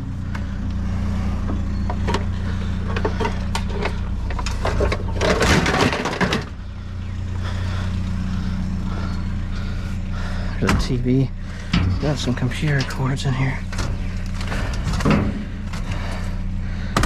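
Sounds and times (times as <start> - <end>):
vehicle engine idling: 0.0 - 17.0
junk clattering in dumpster: 1.8 - 6.6, 13.7 - 17.0.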